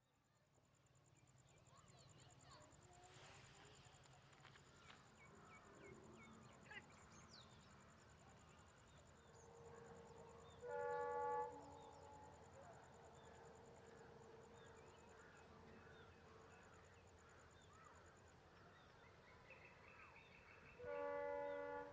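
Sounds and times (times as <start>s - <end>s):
train horn blast: 10.5s - 12.4s, 20.7s - 21.9s.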